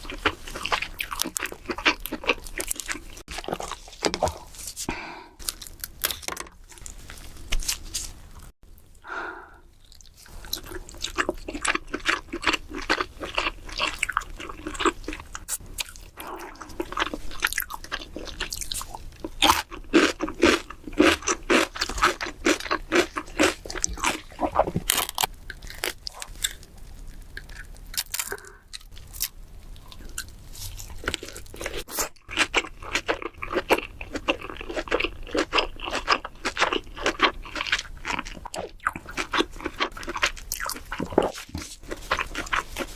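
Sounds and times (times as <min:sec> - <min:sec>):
crab shell crunching and chewing: 0:00.0 - 0:04.5, 0:09.8 - 0:42.9.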